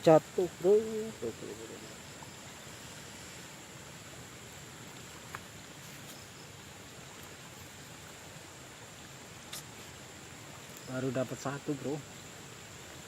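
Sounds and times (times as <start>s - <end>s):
high-pitched insect drone: 0.0s - 4.7s
faint click: 9.5s - 9.7s.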